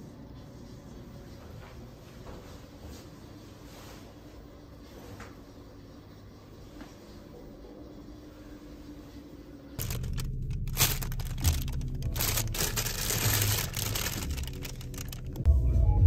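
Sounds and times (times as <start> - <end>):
rustling handling noise: 9.8 - 15.5
music: 9.8 - 16.0.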